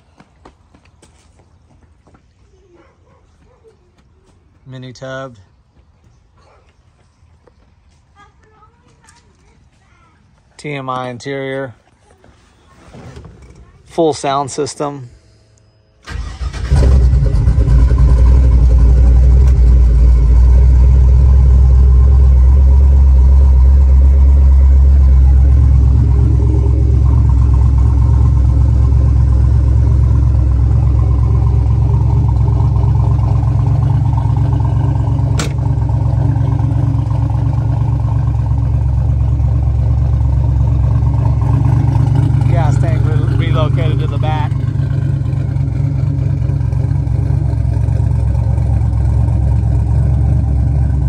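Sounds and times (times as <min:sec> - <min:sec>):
engine starting and idling: 0:16.0 - 0:51.0.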